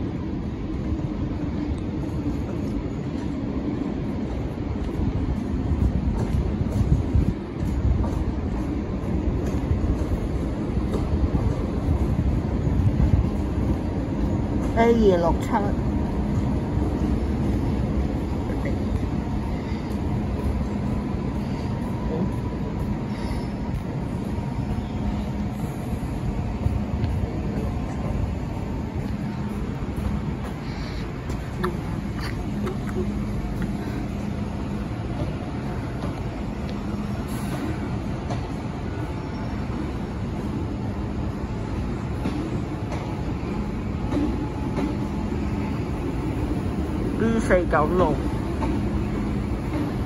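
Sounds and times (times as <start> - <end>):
low equipment hum: 0.0 - 50.0
train wheels rumbling on rails: 0.0 - 50.0.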